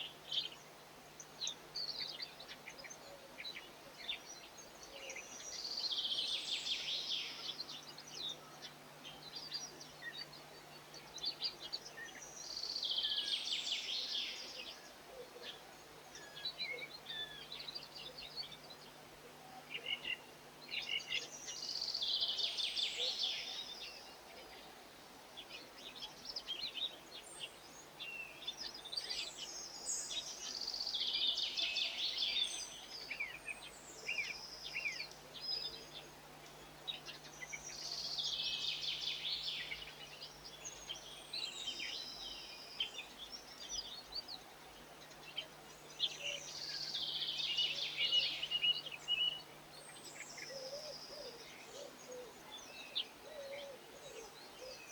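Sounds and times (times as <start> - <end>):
songbird singing high phrase: 45.1 - 54.9.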